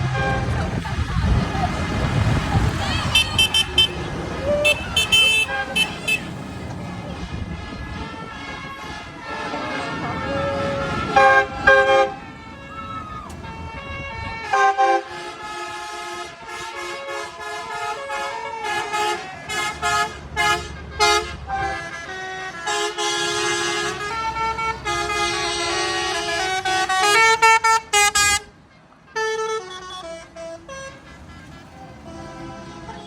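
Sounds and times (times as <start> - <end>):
vehicle horns tooting: 0.0 - 33.0.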